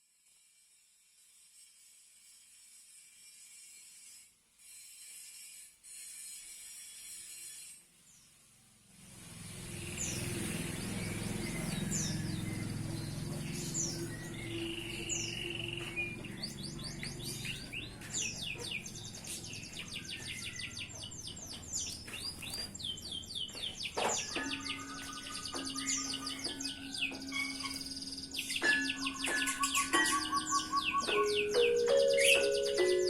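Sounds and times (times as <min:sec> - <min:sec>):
canary trilling and chirping: 0:09.6 - 0:33.0.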